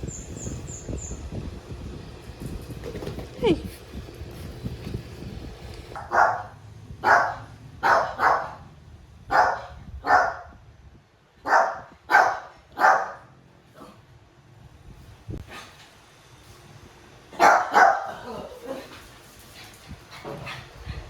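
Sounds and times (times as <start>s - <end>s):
dog barking: 6.0s - 8.7s, 9.3s - 10.6s, 11.4s - 13.3s, 17.4s - 18.4s.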